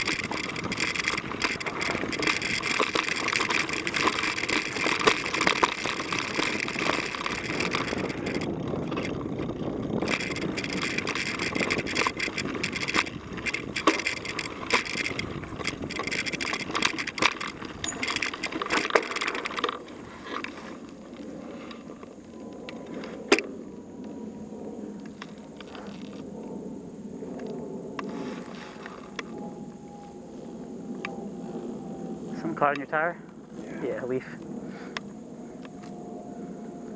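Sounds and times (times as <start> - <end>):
bike tyres on dirt: 0.0 - 23.4, 28.0 - 29.4
bike rattling over bumps: 0.0 - 26.6, 27.2 - 29.8.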